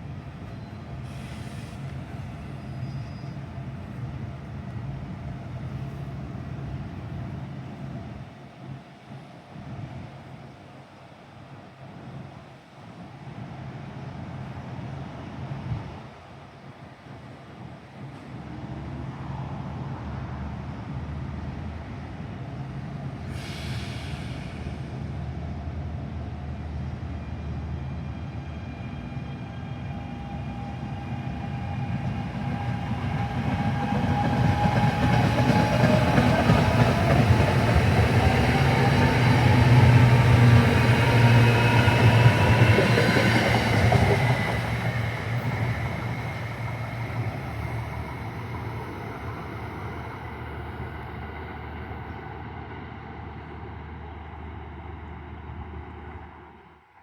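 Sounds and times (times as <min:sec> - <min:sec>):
train passing: 0:17.8 - 0:57.0.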